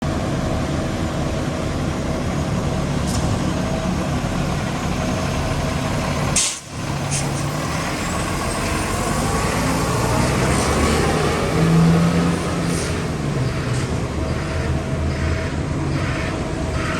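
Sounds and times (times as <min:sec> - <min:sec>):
diesel truck engine running: 0:00.0 - 0:16.9
air-brake release: 0:06.4 - 0:07.4.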